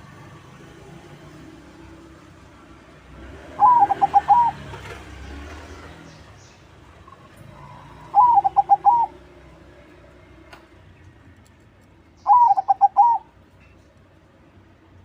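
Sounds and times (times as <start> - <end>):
dove singing: 3.4 - 9.4, 12.1 - 13.7.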